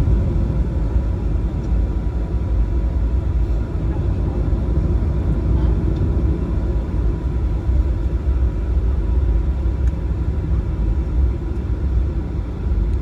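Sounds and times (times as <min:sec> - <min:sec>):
aircraft cabin low rumble: 0:00.0 - 0:13.0.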